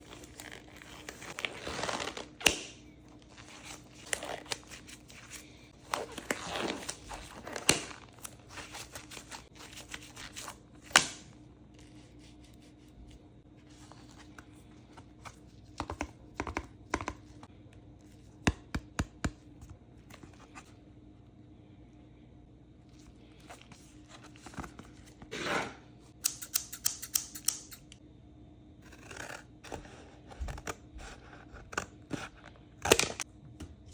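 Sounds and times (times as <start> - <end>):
packaging tearing and crinkling: 3.2 - 11.0.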